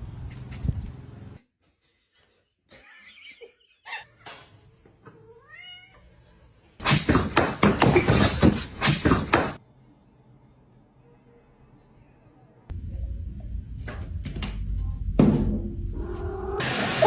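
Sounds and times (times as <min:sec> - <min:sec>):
cat meowing: 0:05.4 - 0:06.1.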